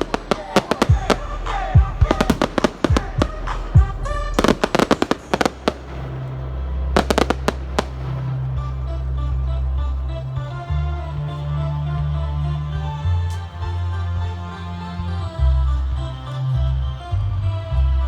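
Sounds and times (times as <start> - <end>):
fireworks bangs and crackles: 0.0 - 8.8
music with steady bass: 0.0 - 18.0.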